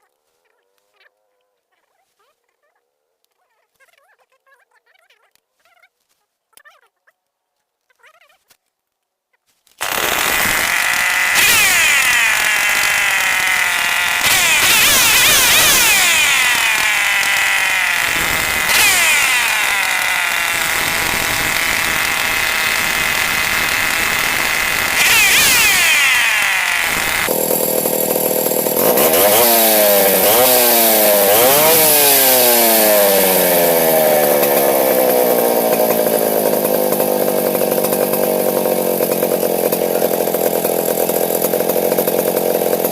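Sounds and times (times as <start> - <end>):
chainsaw engine revving: 9.8 - 42.9.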